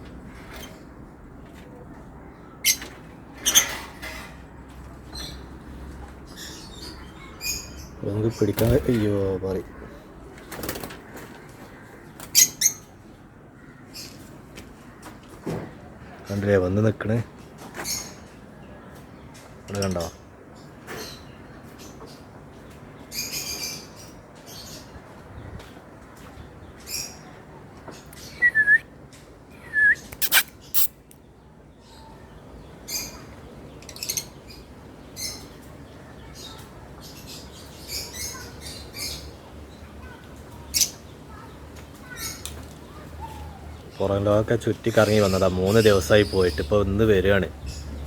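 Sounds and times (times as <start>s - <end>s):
lovebirds chirping: 29.5s - 48.0s.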